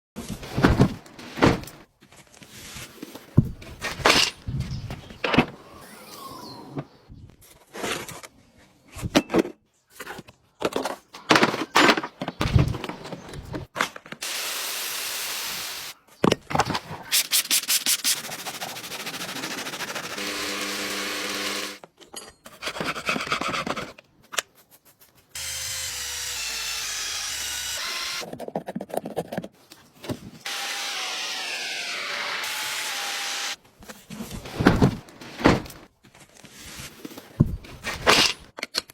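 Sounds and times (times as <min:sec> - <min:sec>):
hissing spray: 0:14.2 - 0:16.0
brushing and scrubbing strokes: 0:17.2 - 0:20.2.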